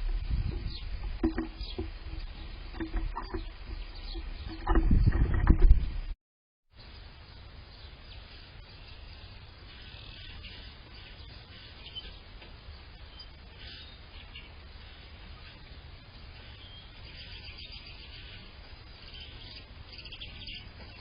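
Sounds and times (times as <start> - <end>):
songbird chirps: 0.0 - 5.8, 6.8 - 21.0
low steady rumble: 0.0 - 6.2.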